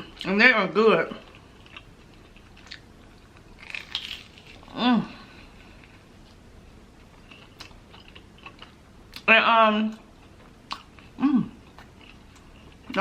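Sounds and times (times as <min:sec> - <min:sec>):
person chewing: 0:01.2 - 0:06.4, 0:07.0 - 0:09.3, 0:10.1 - 0:13.0
person humming: 0:04.7 - 0:05.3.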